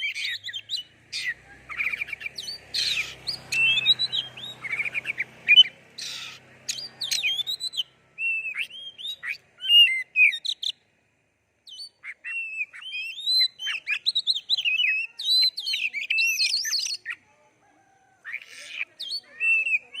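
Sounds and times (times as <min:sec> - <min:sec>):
bird singing rapid whistles: 0:00.0 - 0:10.8, 0:11.6 - 0:17.2, 0:19.0 - 0:20.0
harsh rasping bird note: 0:01.1 - 0:09.4.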